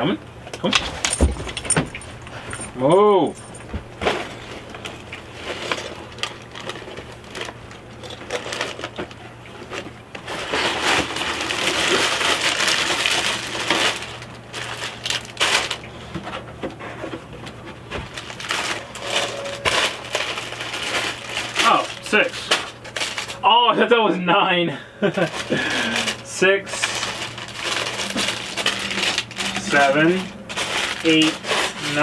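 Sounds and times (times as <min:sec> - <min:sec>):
objects clicking and knocking: 0:00.6 - 0:03.9
packaging rustling: 0:00.7 - 0:03.8, 0:11.0 - 0:15.8, 0:17.9 - 0:23.4, 0:25.1 - 0:32.0.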